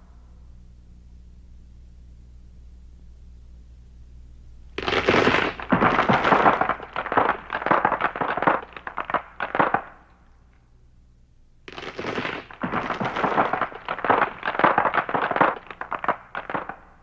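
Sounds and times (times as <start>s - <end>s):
sharp pops and crackles: 4.7s - 10.6s, 11.7s - 17.0s.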